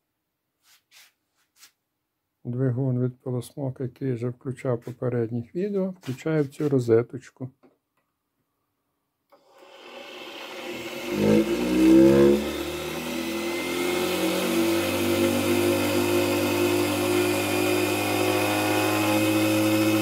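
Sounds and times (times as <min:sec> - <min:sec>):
vacuum cleaner motor whining: 0:09.3 - 0:20.0.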